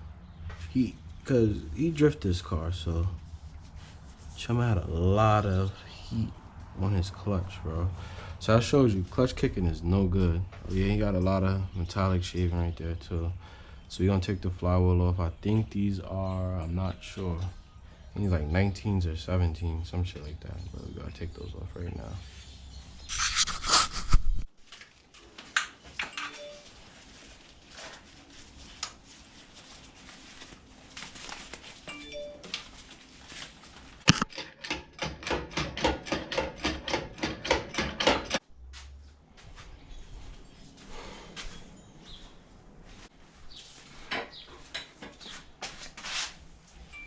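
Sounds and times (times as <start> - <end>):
metal tools clinking on engine parts: 26.0 - 26.5, 34.3 - 38.4.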